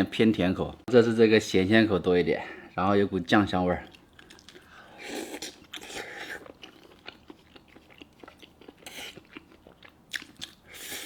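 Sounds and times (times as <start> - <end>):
person chewing food: 3.8 - 11.0.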